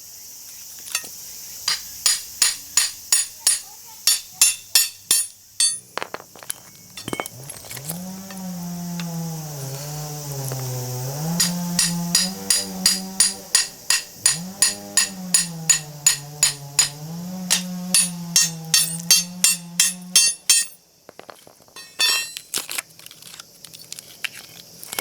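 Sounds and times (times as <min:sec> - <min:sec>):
hammer striking steel chisel: 0:01.7 - 0:05.8, 0:11.4 - 0:20.8, 0:21.8 - 0:22.4
light metallic clinks: 0:11.4 - 0:20.8, 0:21.8 - 0:22.5.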